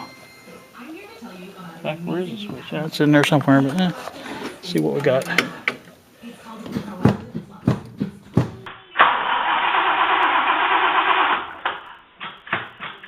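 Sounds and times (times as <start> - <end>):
car starter cranking engine: 9.0 - 12.5
sharp clicks and knocks: 11.6 - 13.0.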